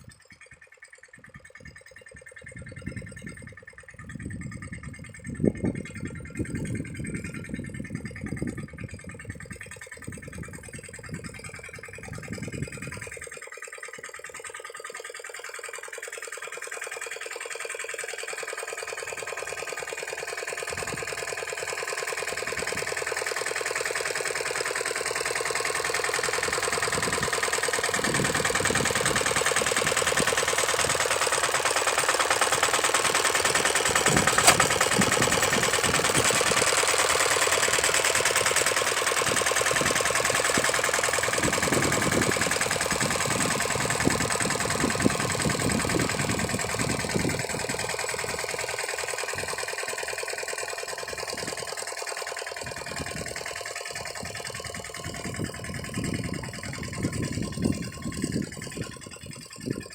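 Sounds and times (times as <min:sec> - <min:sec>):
diesel engine clattering: 0:00.0 - 0:59.9
sharp click: 0:33.6 - 0:36.3.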